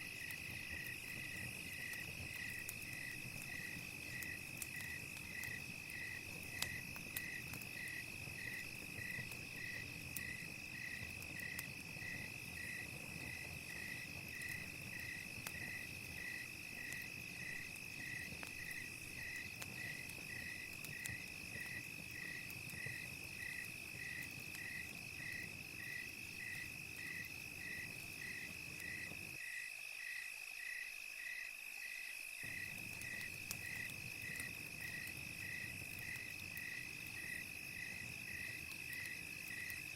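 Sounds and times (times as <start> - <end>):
campfire crackling clicks: 0.0 - 29.4, 32.4 - 39.9
cricket chirping: 0.0 - 39.9
insect trill: 0.0 - 39.9.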